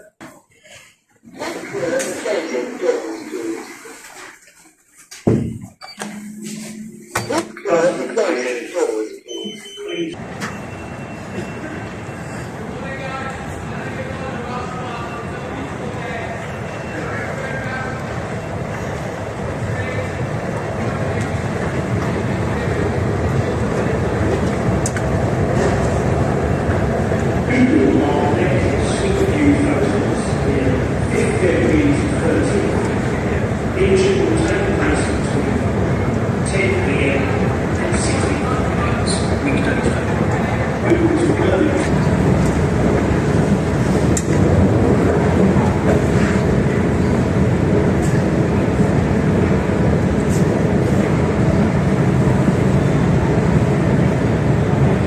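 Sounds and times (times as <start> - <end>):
train rumbling: 5.5 - 55.0.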